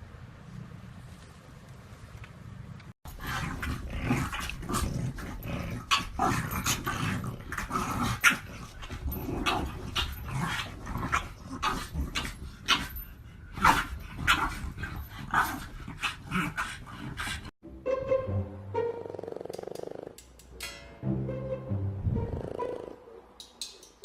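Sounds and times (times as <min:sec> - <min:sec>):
puppy growling: 0:03.1 - 0:17.5.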